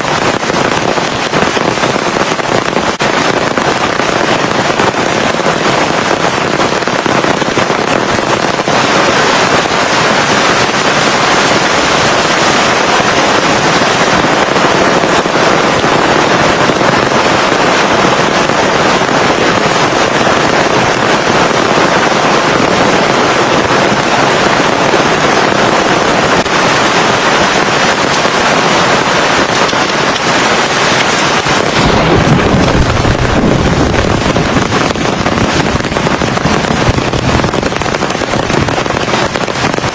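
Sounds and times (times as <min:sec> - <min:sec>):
heavy rain pouring: 0:00.0 - 0:39.9
deep low rumble: 0:30.8 - 0:38.6.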